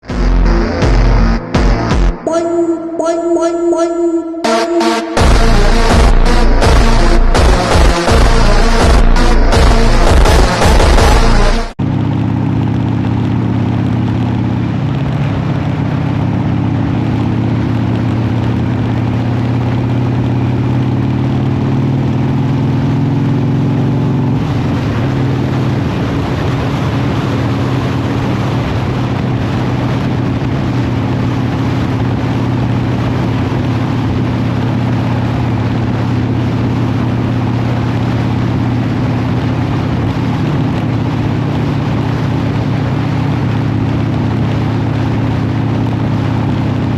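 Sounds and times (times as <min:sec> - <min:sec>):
motorcycle engine running: 0:00.0 - 0:02.3, 0:05.2 - 0:46.9
rushing noise: 0:00.0 - 0:11.8.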